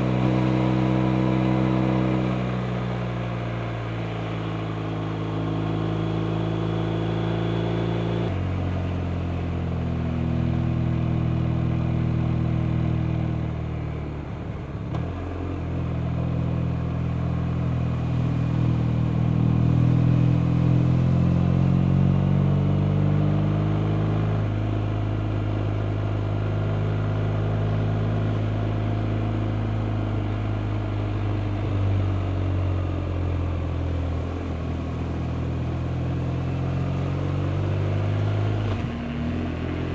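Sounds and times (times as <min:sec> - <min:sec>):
motorcycle engine accelerating: 0:00.0 - 0:08.5.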